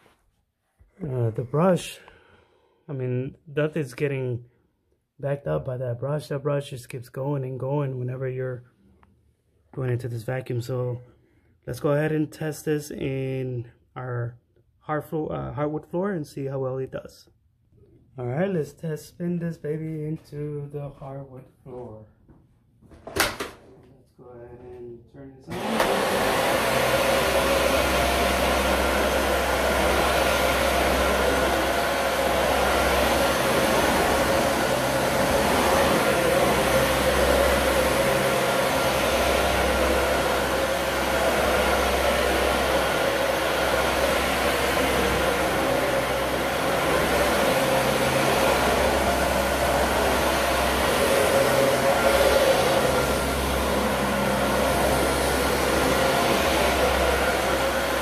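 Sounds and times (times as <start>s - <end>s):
vacuum cleaner on hardwood floor: 25.5s - 58.0s.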